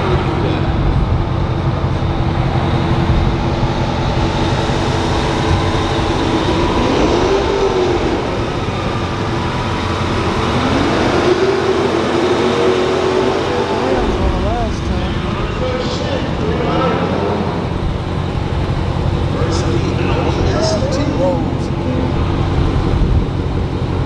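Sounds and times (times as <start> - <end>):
vehicle engines droning: 0.0 - 24.0.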